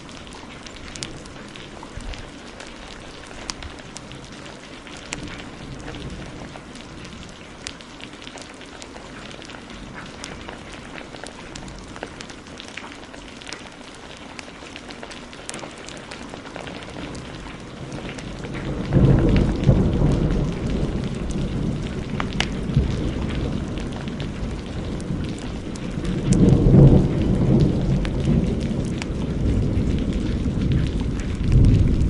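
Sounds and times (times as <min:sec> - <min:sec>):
heavy rain: 0:00.0 - 0:32.0
wood fire crackling: 0:00.0 - 0:32.0
thunder rumbling: 0:16.6 - 0:32.0.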